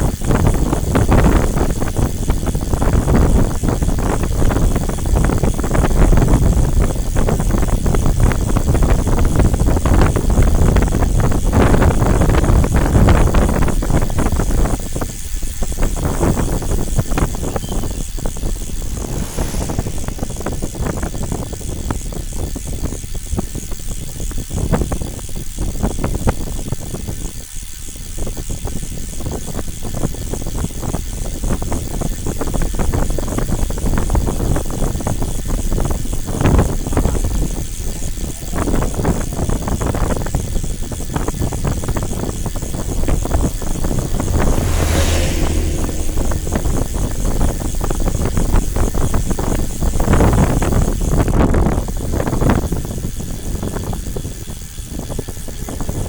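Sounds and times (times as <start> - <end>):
wind noise: 0.0 - 22.2, 32.5 - 56.0
vehicle road rumble: 16.0 - 21.0, 41.1 - 52.0.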